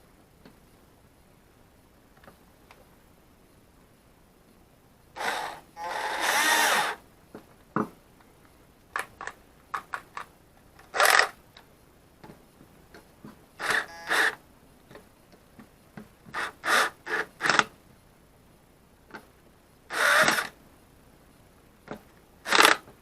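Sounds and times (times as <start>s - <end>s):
sharp handling clicks and knocks: 7.3s - 13.5s.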